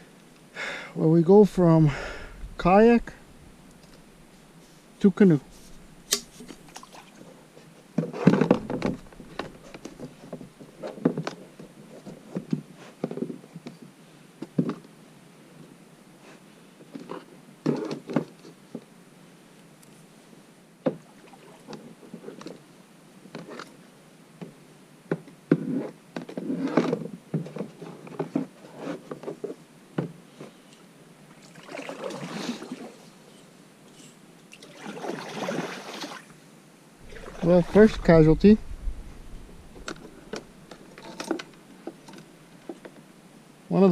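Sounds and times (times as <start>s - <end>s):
paddle splashing water: 5.5s - 7.4s, 31.4s - 33.0s, 34.5s - 36.3s, 37.0s - 41.1s
paddle knocking branches and hull: 8.0s - 11.2s, 37.0s - 42.9s.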